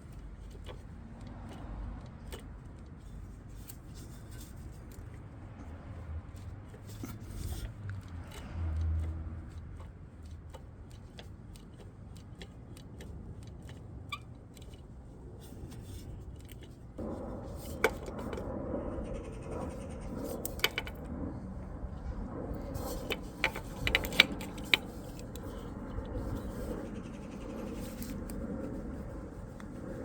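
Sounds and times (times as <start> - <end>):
hand tools clicking on metal: 6.8 - 16.8, 20.1 - 21.1, 22.0 - 28.8
metal rattling: 19.4 - 30.0.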